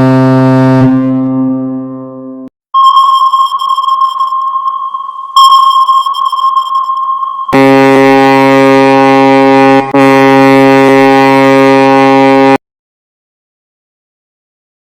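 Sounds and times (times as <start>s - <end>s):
ship's horn: 0.0s - 1.5s, 7.6s - 12.6s
high electronic tone: 2.7s - 10.0s.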